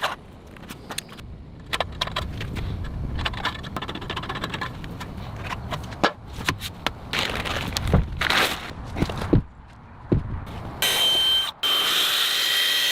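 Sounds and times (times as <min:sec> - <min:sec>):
steady low rumble: 0:01.2 - 0:06.0.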